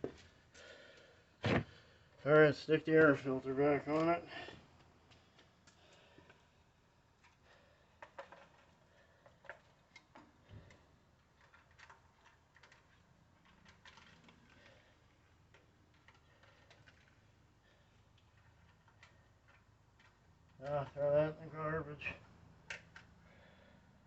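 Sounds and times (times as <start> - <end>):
faint clicks of small parts handled: 4.7 - 6.5, 8.0 - 17.2, 18.1 - 21.0, 22.6 - 23.2.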